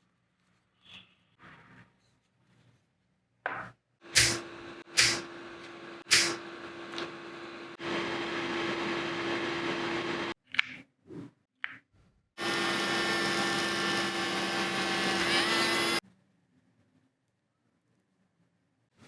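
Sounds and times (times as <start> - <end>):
small electric motor whirring: 12.4 - 16.0.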